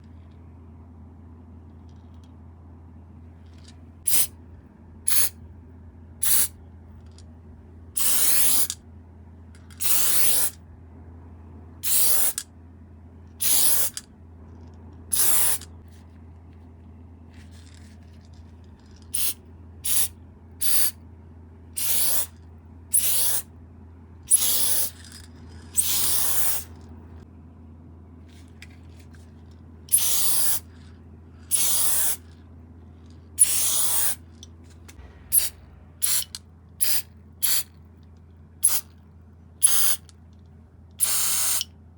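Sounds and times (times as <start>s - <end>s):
steady low hum: 0.0s - 41.9s
spray paint can hissing bursts: 4.1s - 4.3s, 5.1s - 5.3s, 6.2s - 6.5s, 8.0s - 8.8s, 9.8s - 10.6s, 11.8s - 12.4s, 13.4s - 14.0s, 15.1s - 15.6s, 19.1s - 20.9s, 21.8s - 22.3s, 22.9s - 23.5s, 24.3s - 25.0s, 25.8s - 26.7s, 29.9s - 30.7s, 31.5s - 32.2s, 33.4s - 34.2s, 35.3s - 37.7s, 38.6s - 38.9s, 39.6s - 40.1s, 41.0s - 41.7s.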